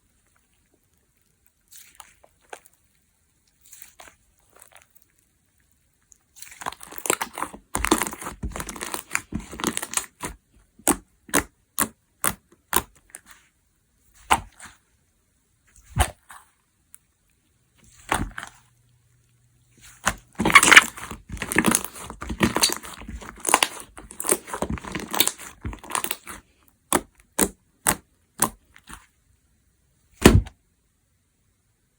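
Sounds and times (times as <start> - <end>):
slime crackling: 6.2 - 13.4, 19.7 - 29.1
air pockets popping in slime: 6.4 - 13.3, 14.2 - 14.8, 15.8 - 16.4, 17.9 - 18.6, 19.8 - 29.0, 30.2 - 30.6.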